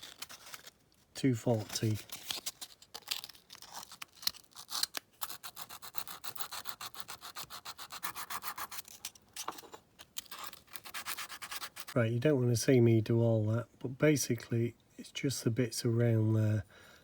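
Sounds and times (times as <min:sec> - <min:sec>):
hand sanding metal: 0:10.9 - 0:12.0.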